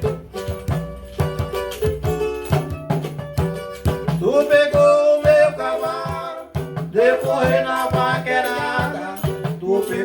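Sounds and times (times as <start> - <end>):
string instruments and percussion: 0.0 - 10.0
person singing verses: 4.2 - 10.0.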